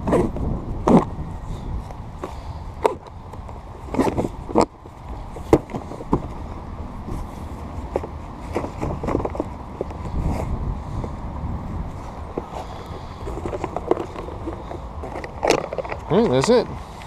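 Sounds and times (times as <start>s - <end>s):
knocks and clicks of folding kayak: 1.8s - 6.4s, 7.8s - 10.4s, 13.2s - 16.8s.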